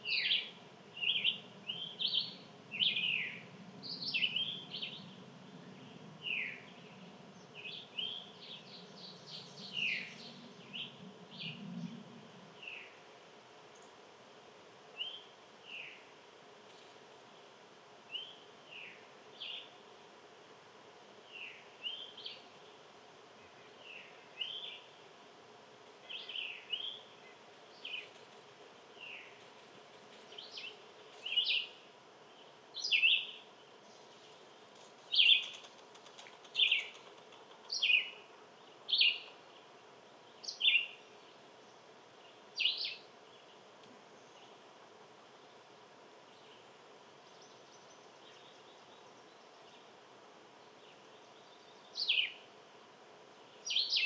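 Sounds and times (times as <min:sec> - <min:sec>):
small bird chirping: 0:35.1 - 0:38.2.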